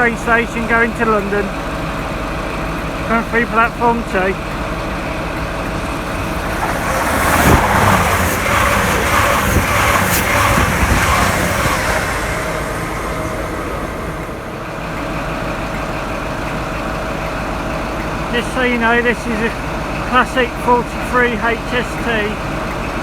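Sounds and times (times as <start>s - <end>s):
diesel train passing: 0.0s - 23.0s
train wheel clatter: 0.0s - 23.0s
steady low hum: 4.5s - 17.5s.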